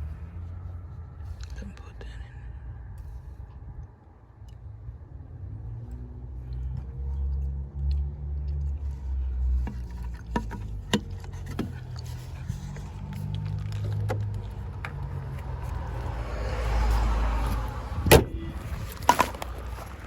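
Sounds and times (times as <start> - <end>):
car engine idling: 0.0 - 20.0
sharp clicks and knocks: 9.5 - 15.8.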